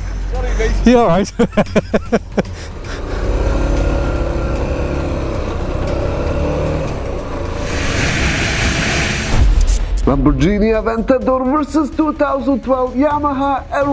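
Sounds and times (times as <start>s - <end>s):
vehicle engine running: 0.0s - 9.7s
road noise: 0.0s - 10.2s
strong rushing hiss: 7.4s - 9.8s.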